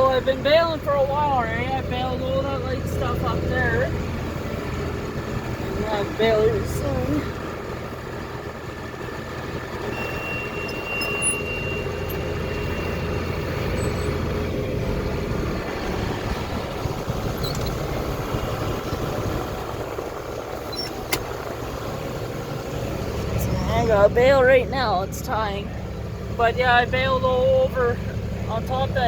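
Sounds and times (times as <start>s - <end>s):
tractor engine running: 0.0s - 29.0s
thin high tone: 9.8s - 14.2s.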